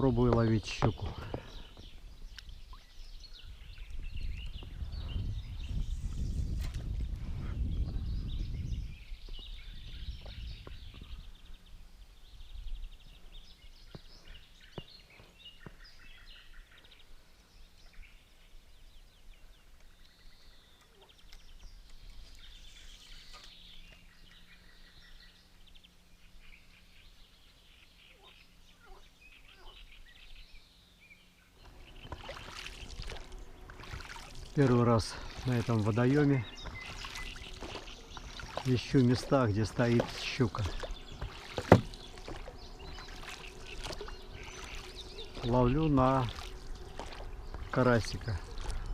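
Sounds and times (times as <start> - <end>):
small birds chirping: 0.0 - 48.9
faint low hum: 17.2 - 48.9.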